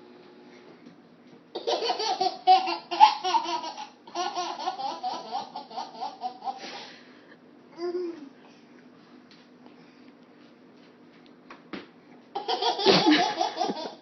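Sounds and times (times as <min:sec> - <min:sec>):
baby giggling: 0:01.6 - 0:06.7, 0:12.4 - 0:14.0.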